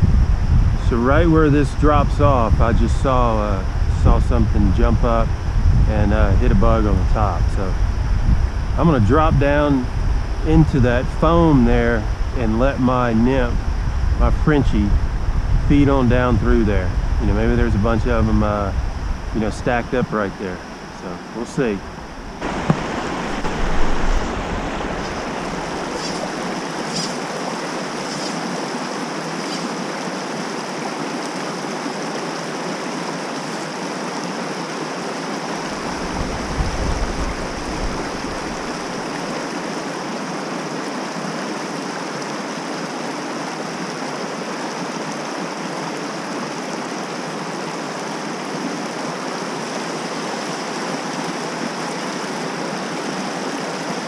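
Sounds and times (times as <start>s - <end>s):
creek running over rocks: 15.7s - 54.0s.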